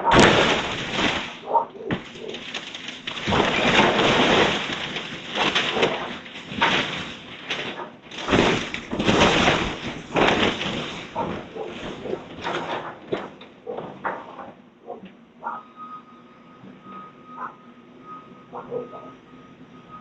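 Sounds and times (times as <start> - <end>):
timber and debris crashing: 0.0 - 14.6.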